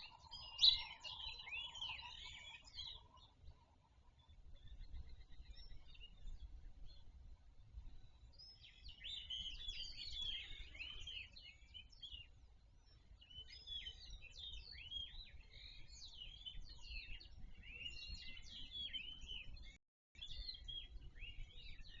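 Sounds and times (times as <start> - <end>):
birds chirping and calling: 8.6 - 12.0.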